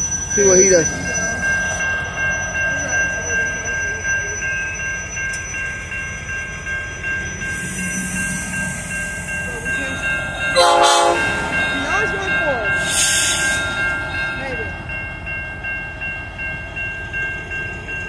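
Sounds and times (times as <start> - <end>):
diesel locomotive engine rumbling: 0.0 - 18.0
locomotive bell ringing: 0.0 - 18.0
air hiss: 12.8 - 13.8.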